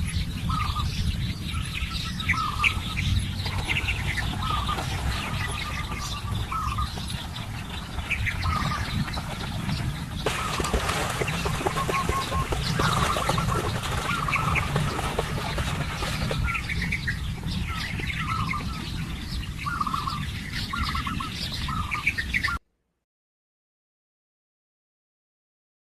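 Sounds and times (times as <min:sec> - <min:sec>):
steady low rumble: 0:00.0 - 0:20.4
birds chirping and squawking: 0:00.0 - 0:22.6.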